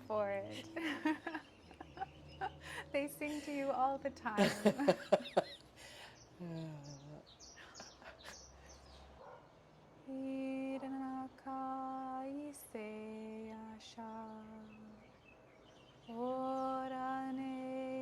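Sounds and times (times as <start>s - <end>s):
faint bird chirps: 4.6s - 9.9s.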